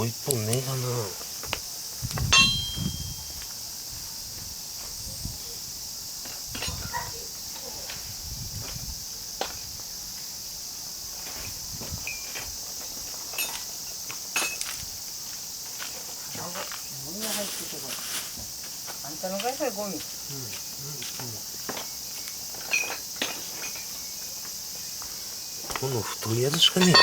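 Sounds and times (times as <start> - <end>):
crickets chirring: 0.0 - 27.0
metal tools clanking: 2.3 - 3.3, 26.5 - 27.0.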